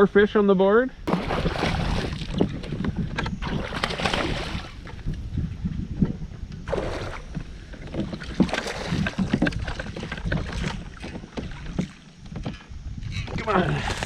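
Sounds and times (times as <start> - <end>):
wind rumbling on microphone: 0.0 - 14.0
water splashes and knocks on hull: 1.1 - 5.2, 6.0 - 12.7.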